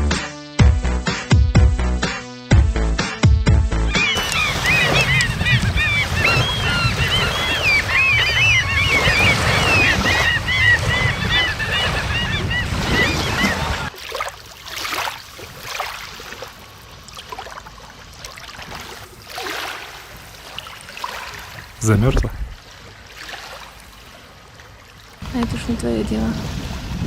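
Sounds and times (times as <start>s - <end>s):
birds calling: 3.8s - 13.9s, 19.0s - 22.7s
wind and waves: 3.9s - 27.0s
soft water sound: 13.4s - 27.0s.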